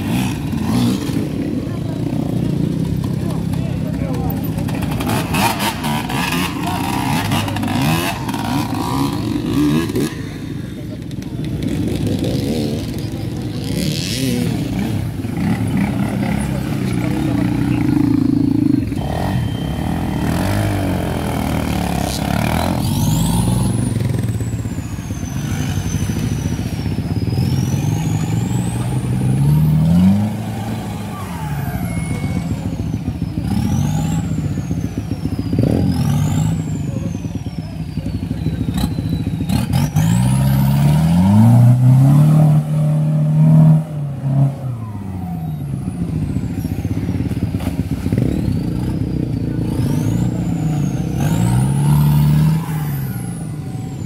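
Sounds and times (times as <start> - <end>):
engine revving: 0.0 - 54.0.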